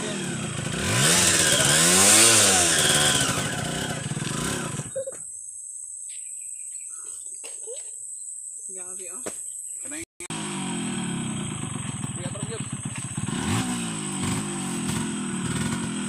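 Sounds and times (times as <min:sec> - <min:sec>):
motorcycle engine revving: 0:00.0 - 0:05.0, 0:10.2 - 0:16.0.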